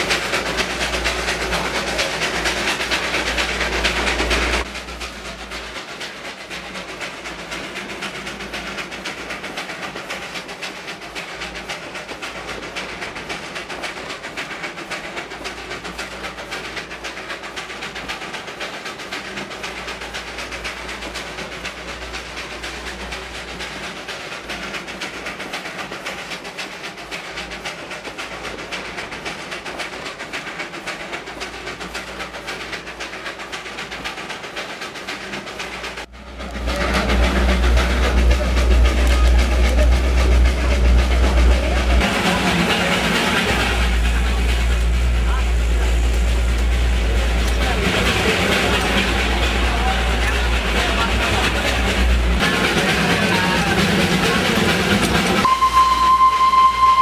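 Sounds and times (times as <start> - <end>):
train carriage rattling on rails: 0.0 - 57.0
heavy low rumble: 36.0 - 55.6.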